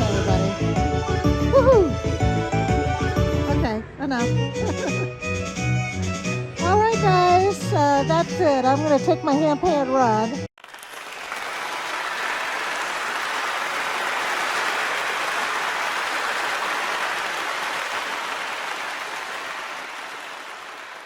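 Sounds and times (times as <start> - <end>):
crowd applauding: 10.6 - 21.0.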